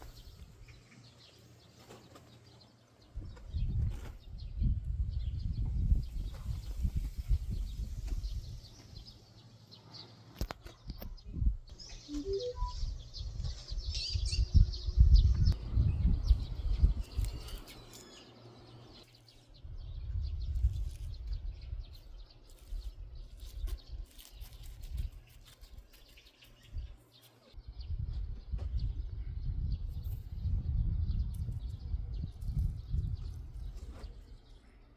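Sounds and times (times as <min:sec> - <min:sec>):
small birds chirping: 0:00.0 - 0:34.9
low rumble in gusts: 0:12.8 - 0:17.6.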